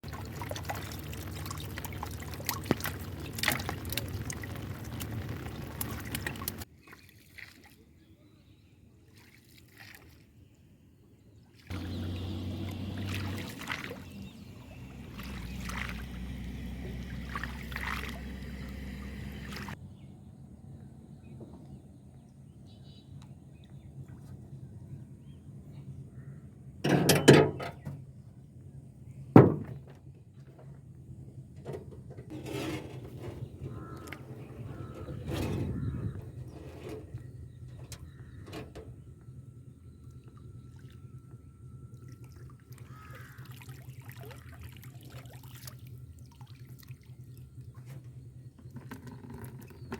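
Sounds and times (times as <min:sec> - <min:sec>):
water trickling: 0:00.0 - 0:06.7, 0:11.7 - 0:19.8, 0:41.9 - 0:47.9
water pouring and splashing: 0:00.0 - 0:07.8, 0:11.6 - 0:19.8, 0:42.0 - 0:47.9.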